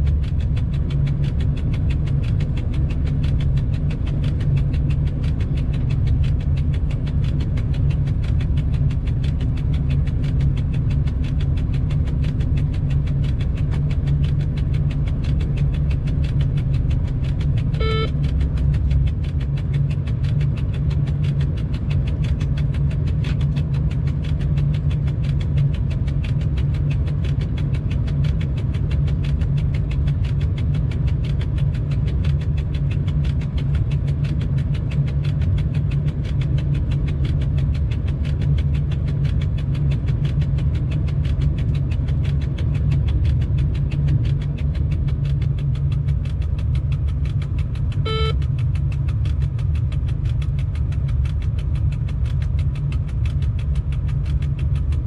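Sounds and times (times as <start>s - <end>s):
locomotive rumble: 0.0s - 55.0s
short beep: 17.8s - 18.2s, 48.0s - 48.4s.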